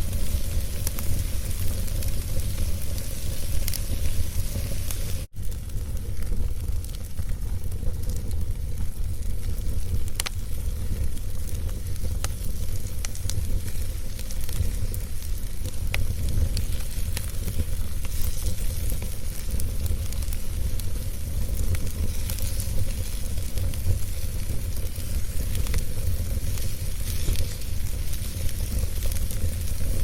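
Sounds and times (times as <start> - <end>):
fire burning in fireplace: 0.0 - 30.0
fire crackles and pops: 0.0 - 30.0.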